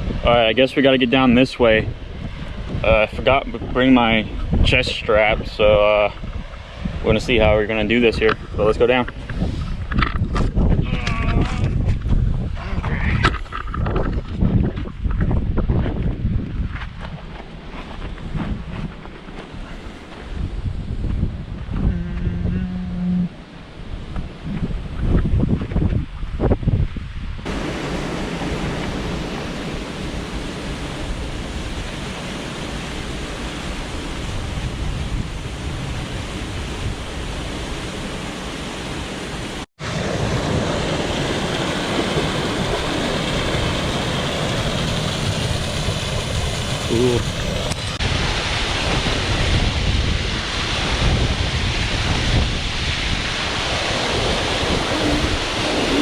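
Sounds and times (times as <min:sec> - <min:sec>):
wind buffeting microphone: 0:00.0 - 0:00.6, 0:01.6 - 0:38.2, 0:39.4 - 0:56.0
ocean surf: 0:27.5 - 0:56.0
rushing waterfall: 0:27.5 - 0:56.0.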